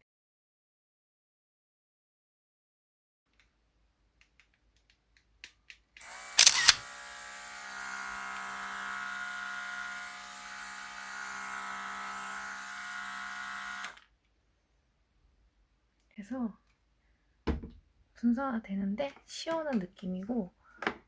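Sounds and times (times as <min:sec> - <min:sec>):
small motor humming: 0:06.0 - 0:14.0.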